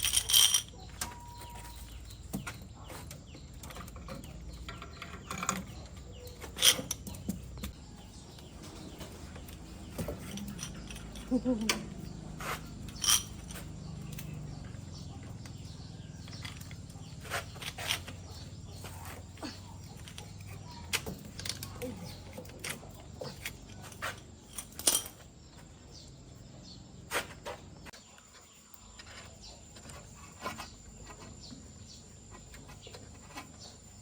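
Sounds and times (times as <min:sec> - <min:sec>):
tools and metal parts clinking: 0:00.0 - 0:26.0.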